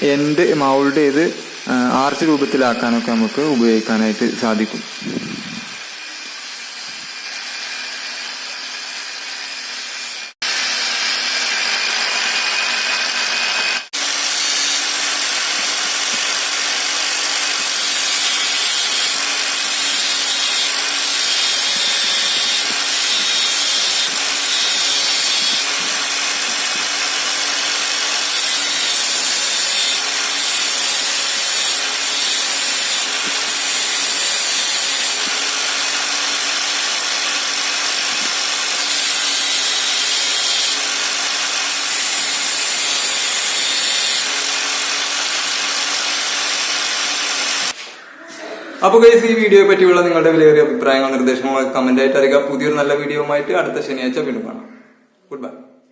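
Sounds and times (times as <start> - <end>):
angle grinder motor hum: 0.0 - 47.8
wood grinding on wheel: 11.0 - 47.8.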